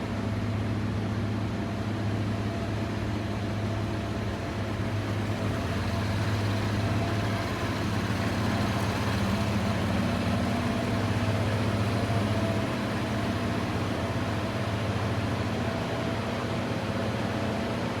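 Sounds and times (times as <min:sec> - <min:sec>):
truck engine idling: 0:03.8 - 0:16.4.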